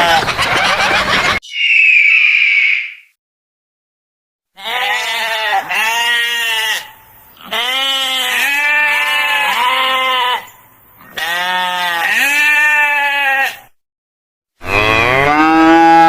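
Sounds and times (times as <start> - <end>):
goat bleating: 4.6 - 13.7.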